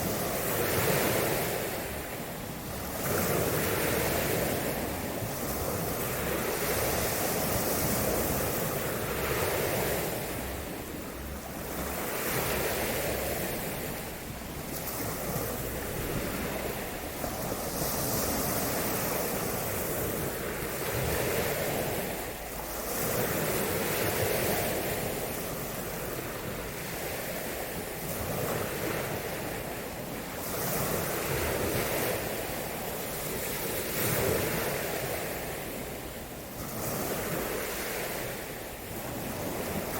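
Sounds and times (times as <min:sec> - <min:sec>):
waves breaking on a shore: 0:00.0 - 0:39.9
wind rumbling on microphone: 0:00.0 - 0:39.9.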